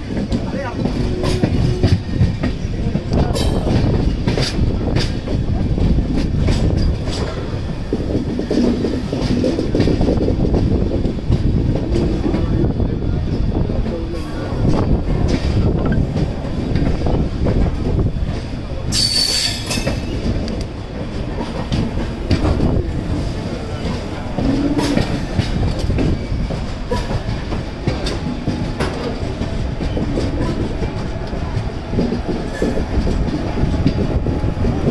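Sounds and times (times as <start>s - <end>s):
train wheels rumbling on rails: 0.0s - 34.9s
high wheel squeal: 18.9s - 19.9s.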